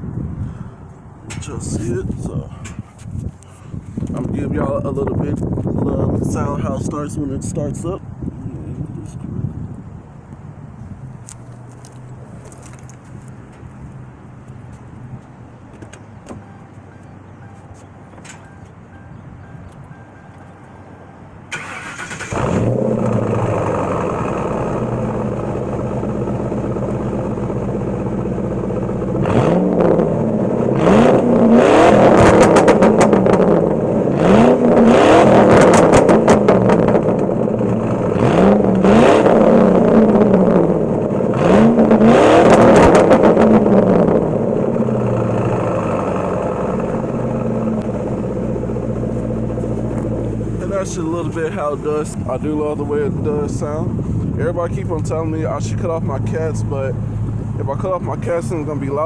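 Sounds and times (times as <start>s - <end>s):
car engine starting and idling: 11.1s - 59.0s
car engine revving: 21.5s - 59.0s.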